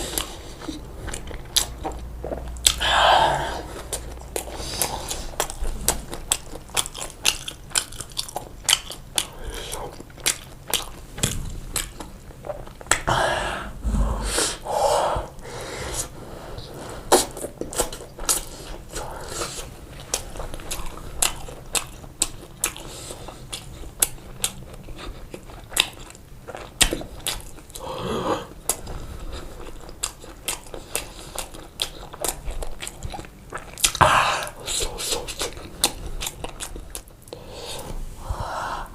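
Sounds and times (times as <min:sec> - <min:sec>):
chewing pizza: 0:00.0 - 0:13.1, 0:16.6 - 0:37.9.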